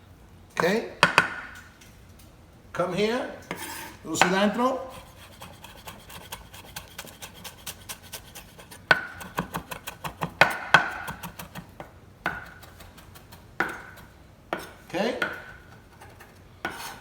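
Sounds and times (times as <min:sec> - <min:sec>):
knife chopping on cutting board: 0:03.5 - 0:17.0.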